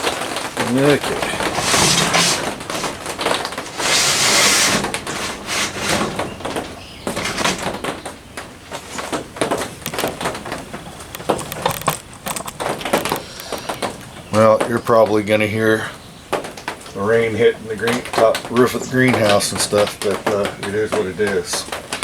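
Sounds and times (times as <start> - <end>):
rustling noise: 0.0 - 14.0
rain tapping on greenhouse roof: 0.0 - 22.0.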